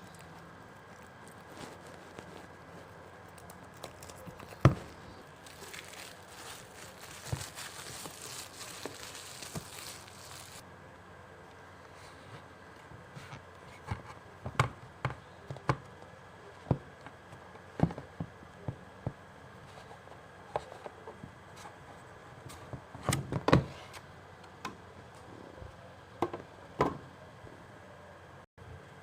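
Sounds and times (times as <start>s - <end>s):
hands handling cd packaging: 0.0s - 10.6s.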